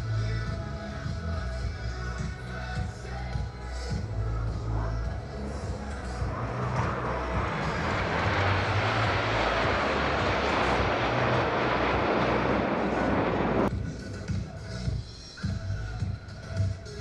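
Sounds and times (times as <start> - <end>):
jets roaring past: 4.6 - 13.7.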